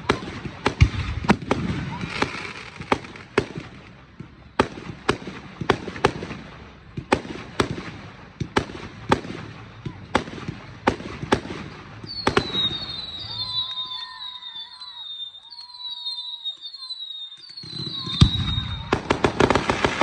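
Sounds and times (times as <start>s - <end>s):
high warbling whistle: 12.1s - 18.9s.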